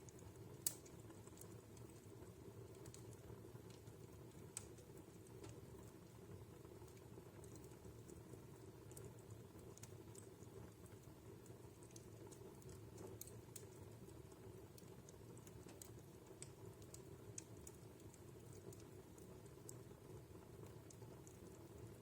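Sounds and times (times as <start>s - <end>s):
fire snaps and pops: 0.0s - 22.0s
wood fire crackling: 0.0s - 22.0s.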